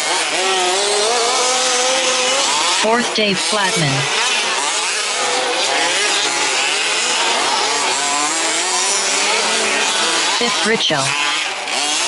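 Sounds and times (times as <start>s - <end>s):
small engines buzzing and revving: 0.0s - 12.0s.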